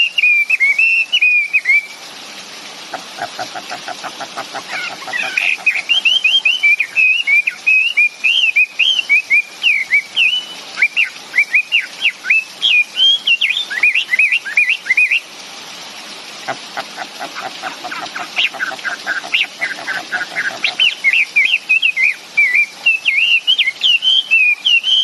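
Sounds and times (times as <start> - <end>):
songbird singing whistled notes: 0.0 - 2.0, 5.2 - 15.2, 19.4 - 25.0.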